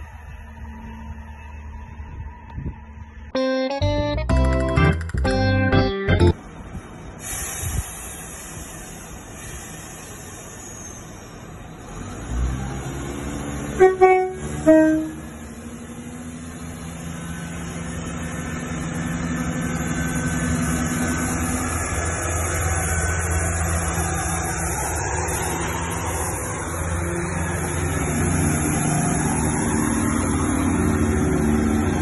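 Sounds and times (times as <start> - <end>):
diesel train rumbling past: 0.0 - 4.3, 4.9 - 32.0
two-tone train horn: 13.8 - 15.4.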